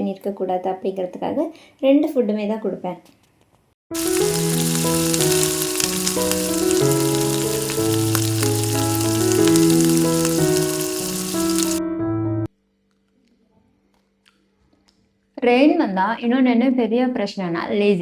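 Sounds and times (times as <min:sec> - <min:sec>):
soft keyboard music: 0:03.9 - 0:12.5
crackling hiss: 0:04.0 - 0:11.8.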